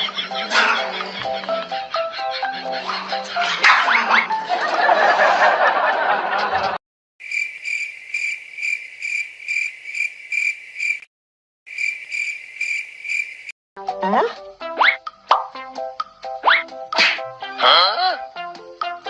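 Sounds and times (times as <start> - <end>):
cricket chirping: 7.2 - 11.1, 11.7 - 13.5.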